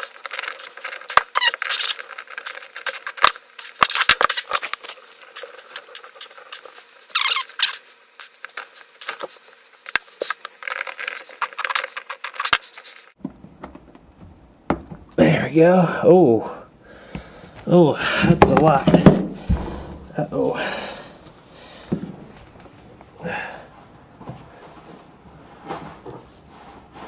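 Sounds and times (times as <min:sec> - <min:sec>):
hands and tool working on hose: 0:00.0 - 0:14.4.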